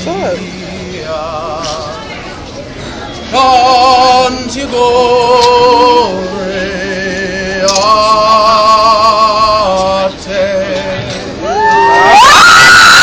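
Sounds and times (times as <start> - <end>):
voices singing a birthday song: 3.3 - 11.4.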